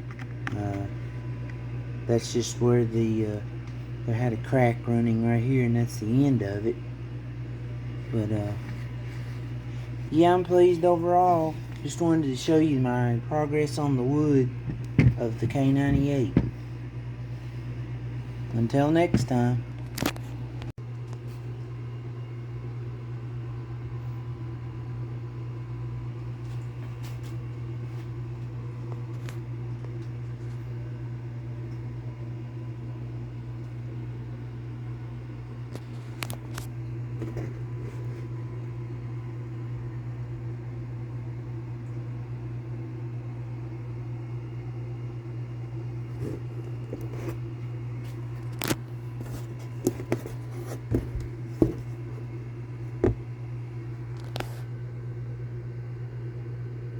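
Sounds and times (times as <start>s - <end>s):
low mechanical hum: 0.0s - 56.9s.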